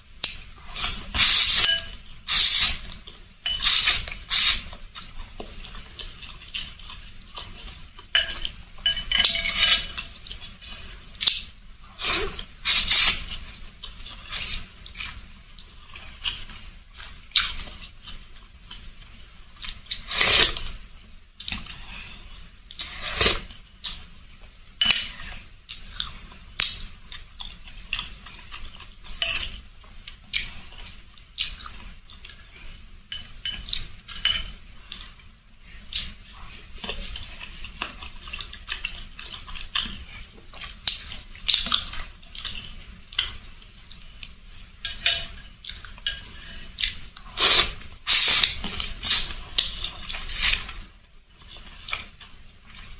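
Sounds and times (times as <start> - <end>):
utensils clinking against bowl: 1.1 - 2.0, 3.4 - 4.4, 8.1 - 10.2, 29.2 - 29.6, 33.1 - 34.6, 44.8 - 46.4
slurping noodles: 19.9 - 20.7, 22.8 - 23.5, 47.3 - 49.4.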